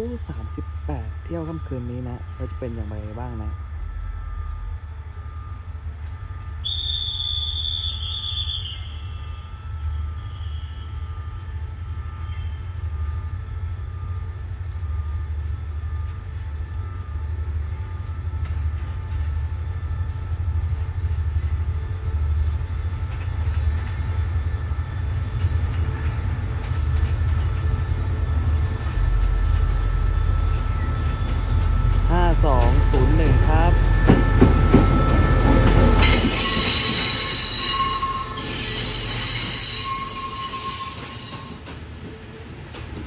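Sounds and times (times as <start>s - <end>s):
diesel locomotive engine rumbling: 0.0s - 43.0s.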